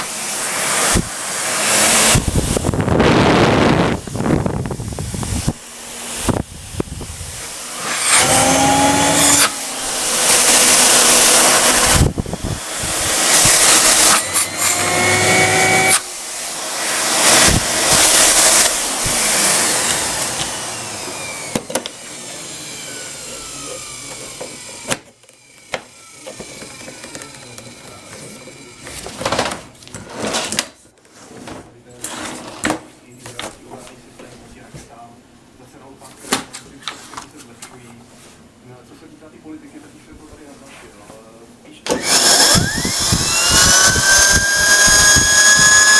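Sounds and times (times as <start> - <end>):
vacuum cleaner running: 0.0 - 29.3, 41.9 - 45.9
motor winding down whine: 0.7 - 28.9, 41.9 - 45.9.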